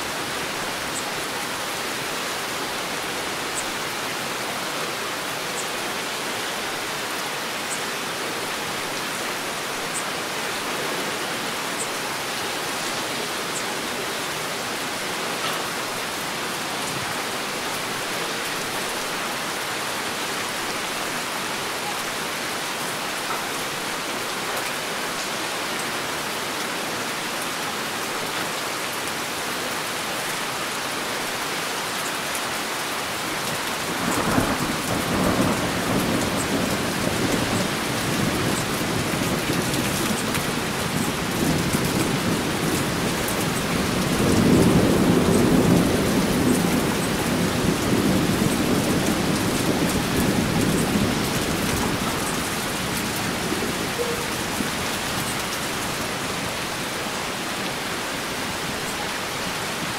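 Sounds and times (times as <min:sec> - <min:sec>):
heavy rain falling: 0:00.0 - 0:59.9
thunder rumbling: 0:33.9 - 0:55.3.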